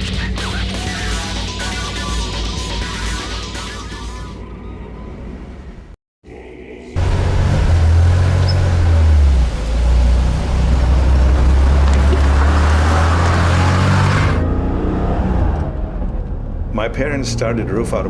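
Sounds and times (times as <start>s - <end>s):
car engine droning: 4.3s - 18.0s.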